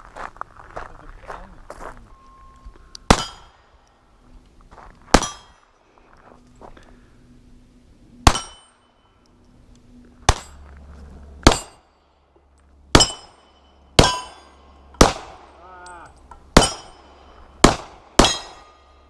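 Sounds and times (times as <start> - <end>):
metallic clangs of steel targets: 3.0 - 3.7, 5.1 - 5.7, 8.2 - 9.2, 10.2 - 10.6, 11.4 - 12.0, 12.9 - 19.0.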